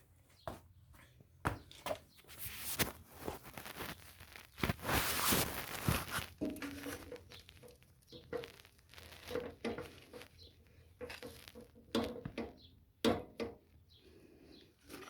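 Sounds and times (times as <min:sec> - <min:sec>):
rustling: 0:02.1 - 0:12.2
hand tools clicking and knocking: 0:11.0 - 0:13.6.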